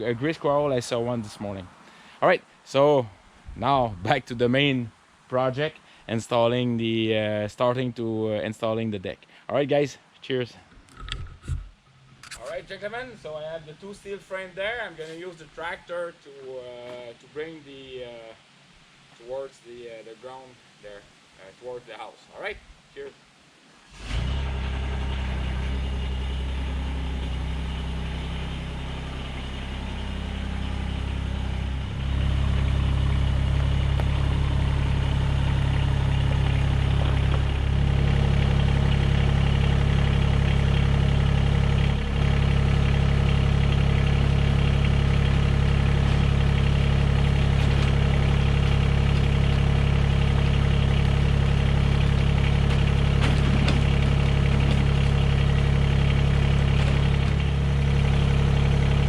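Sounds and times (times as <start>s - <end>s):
tractor diesel engine running: 0.0s - 1.6s, 23.9s - 59.0s.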